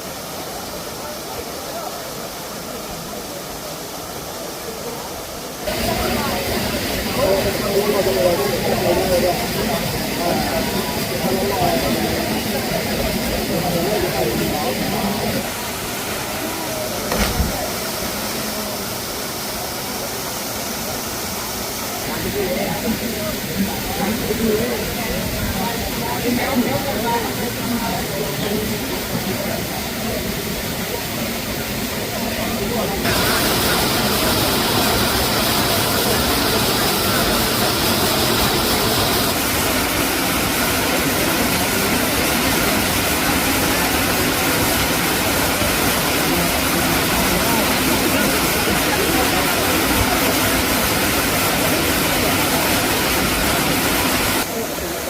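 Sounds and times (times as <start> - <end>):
waterfall roaring: 0.0 - 55.0
low thump: 17.1 - 17.8.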